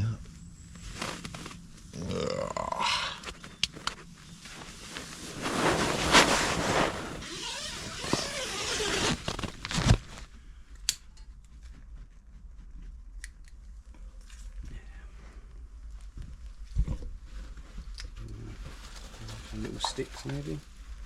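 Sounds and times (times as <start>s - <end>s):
sleeping bag rustling and crinkling: 0.2s - 10.5s, 15.7s - 21.0s.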